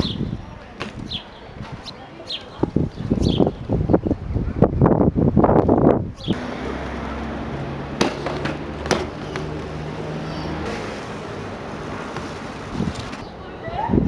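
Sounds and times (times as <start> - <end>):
wind buffeting microphone: 0.0 - 6.4, 12.5 - 14.0.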